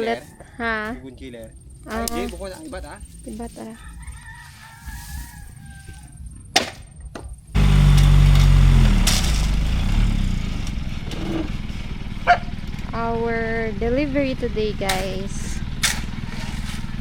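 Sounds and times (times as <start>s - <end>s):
large truck engine running: 7.6s - 17.0s.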